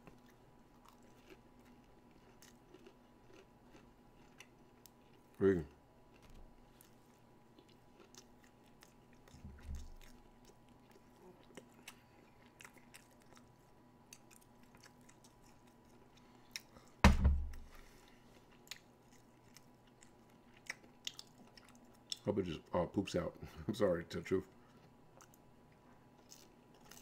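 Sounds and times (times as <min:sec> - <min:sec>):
person chewing: 0:00.0 - 0:22.3, 0:24.6 - 0:27.0
soft low thud: 0:17.0 - 0:17.7.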